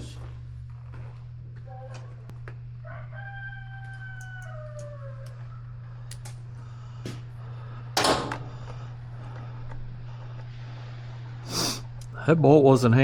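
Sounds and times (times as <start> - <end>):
steady low hum: 0.0 - 13.0
rooster crowing: 2.7 - 6.1.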